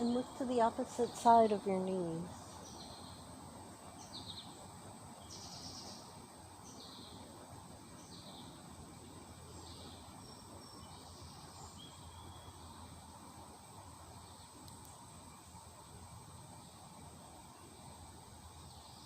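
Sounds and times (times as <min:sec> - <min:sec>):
faint bird chirps: 0:00.0 - 0:07.3, 0:09.4 - 0:13.0
steady high hiss: 0:00.0 - 0:19.0.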